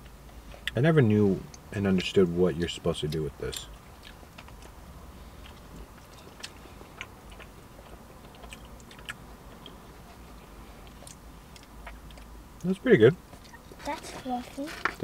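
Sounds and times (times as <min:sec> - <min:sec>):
low steady hum: 0:00.0 - 0:15.0
chewing soft bread: 0:03.1 - 0:12.3.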